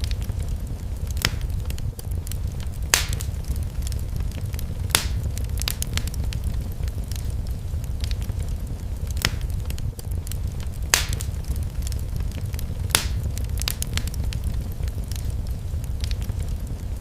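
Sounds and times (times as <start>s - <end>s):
low rumble: 0.0s - 17.0s
wood fire crackling: 0.0s - 17.0s
sharp pops: 1.2s - 2.1s, 2.9s - 3.4s, 4.5s - 6.4s, 9.1s - 10.1s, 10.9s - 14.5s.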